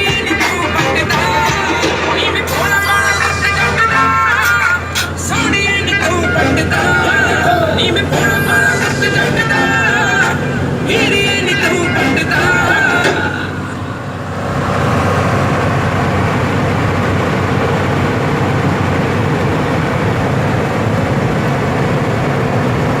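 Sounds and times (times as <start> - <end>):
music: 0.0 - 13.7
road noise: 0.0 - 23.0
truck diesel engine: 0.0 - 23.0.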